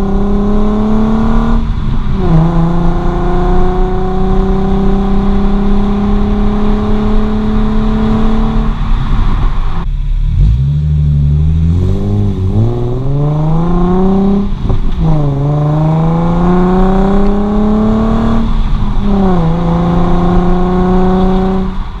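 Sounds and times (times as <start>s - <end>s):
car engine accelerating and shifting: 0.0s - 22.0s.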